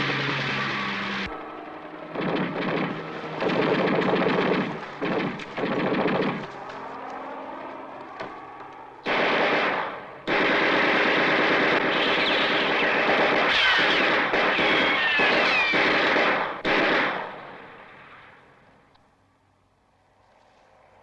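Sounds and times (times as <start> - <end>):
falling whines: 0.0 - 9.0, 11.8 - 15.8
machine-gun fire: 2.1 - 6.5, 9.0 - 17.3.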